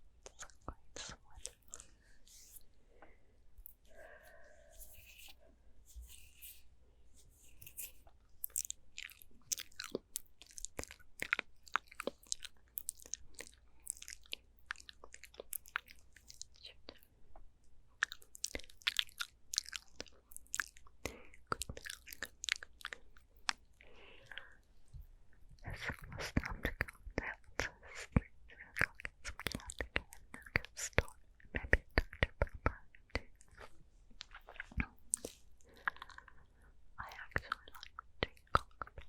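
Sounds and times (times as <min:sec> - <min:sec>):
wet mouth clicks and smacks: 0:25.7 - 0:36.4, 0:37.1 - 0:39.0.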